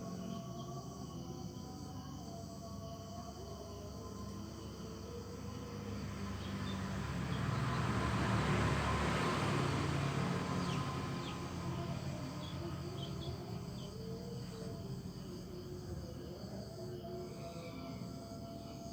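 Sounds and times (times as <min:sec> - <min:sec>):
vehicle passing by: 0:04.6 - 0:16.0.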